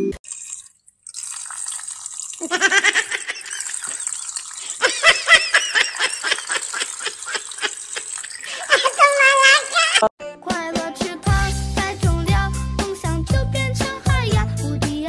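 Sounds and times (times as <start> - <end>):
tap water running: 0.2 - 10.0
person laughing: 2.4 - 3.8, 4.8 - 10.1.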